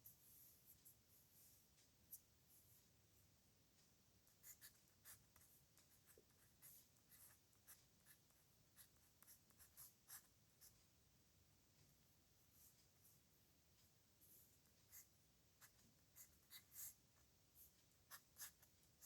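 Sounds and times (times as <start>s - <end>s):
pen scratching on paper: 4.3s - 10.8s, 14.6s - 17.0s, 17.6s - 19.0s.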